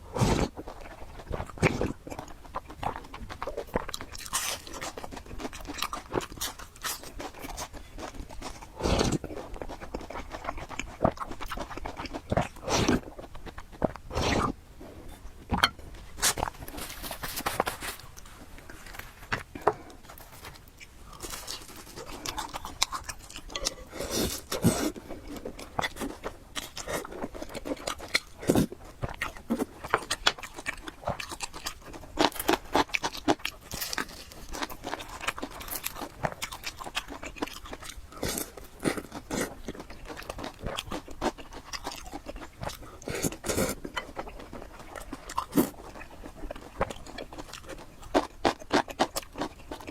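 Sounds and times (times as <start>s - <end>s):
person chewing food: 0.0s - 49.9s.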